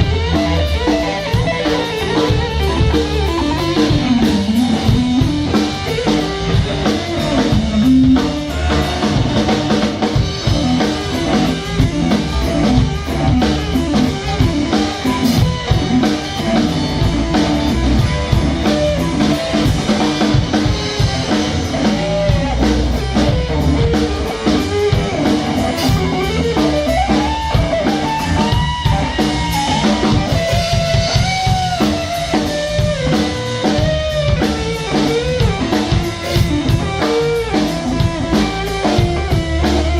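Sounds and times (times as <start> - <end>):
rock music on guitar and drums: 0.0 - 39.9.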